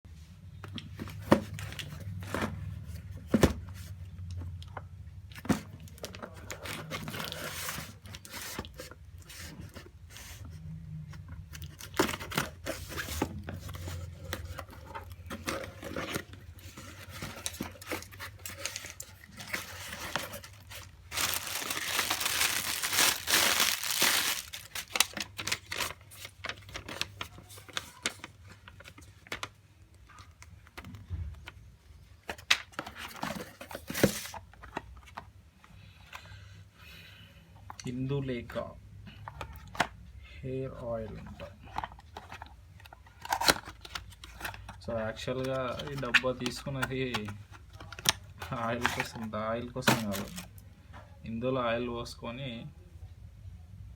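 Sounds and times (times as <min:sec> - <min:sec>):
packaging tearing and crinkling: 0:15.4 - 0:28.3, 0:49.8 - 0:50.5.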